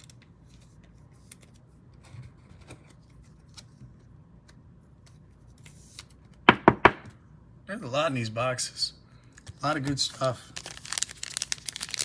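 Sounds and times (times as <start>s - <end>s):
trading cards clicking and rustling: 9.2s - 12.0s.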